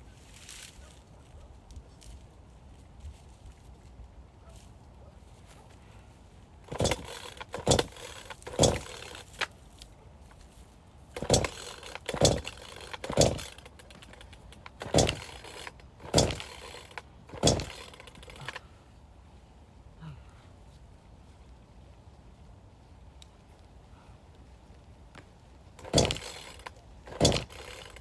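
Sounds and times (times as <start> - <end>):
axe splitting firewood: 6.7 - 9.6, 11.2 - 18.6, 25.8 - 28.0.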